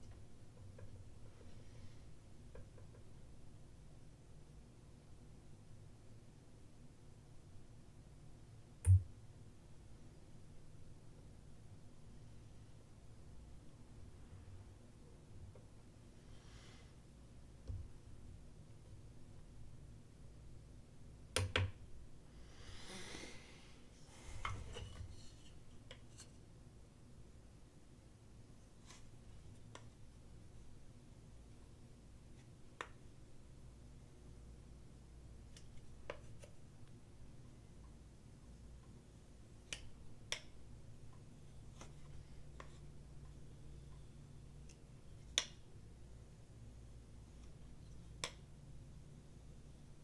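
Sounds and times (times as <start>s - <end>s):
faint low hum: 0.0s - 50.0s
soft rubbing or sliding: 22.5s - 26.4s.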